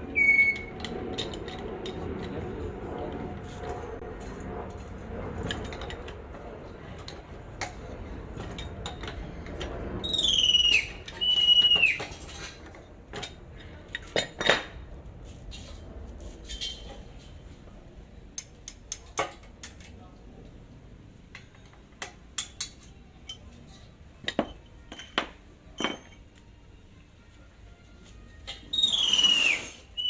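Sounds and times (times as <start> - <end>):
metal tools clinking and knocking: 0.5 - 2.4, 18.3 - 20.0, 21.3 - 26.5
short high-pitched squeals: 28.7 - 30.0.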